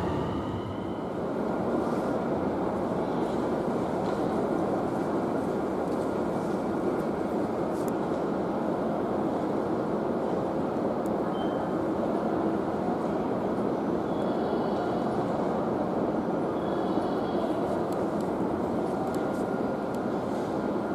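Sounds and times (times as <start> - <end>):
train noise: 0.0 - 20.9.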